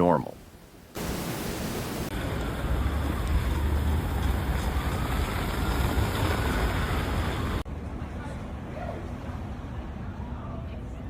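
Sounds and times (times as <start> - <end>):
road noise: 0.9 - 7.9
vehicle engine rumble: 2.1 - 7.7.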